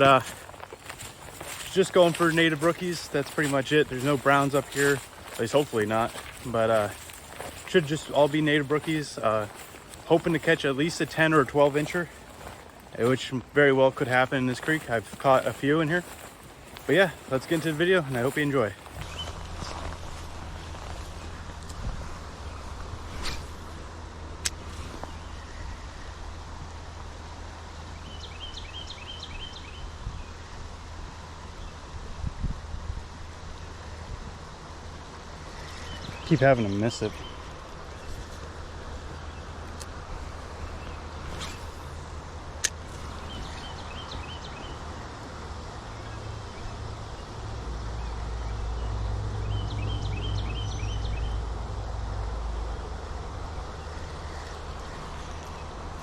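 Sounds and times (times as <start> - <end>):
creek flowing: 0.0 - 25.1, 34.6 - 56.0
songbird singing: 0.0 - 56.0
wind on microphone: 18.9 - 23.8, 31.0 - 33.4.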